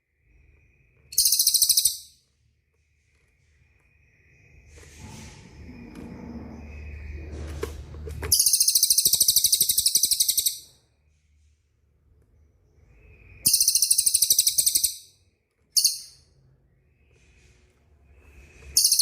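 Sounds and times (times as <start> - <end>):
songbird rapid rolling trill: 1.1 - 2.1, 8.3 - 10.6, 13.0 - 15.0, 18.3 - 19.0.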